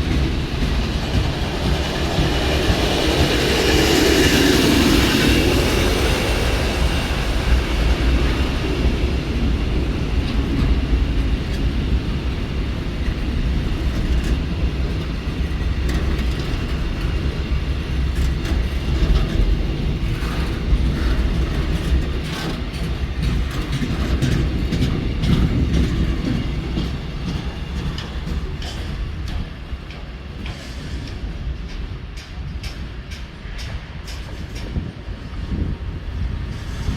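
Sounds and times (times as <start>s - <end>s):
clicks and knocks from train: 0.0s - 36.9s
train wheels rumbling on track: 0.0s - 36.9s.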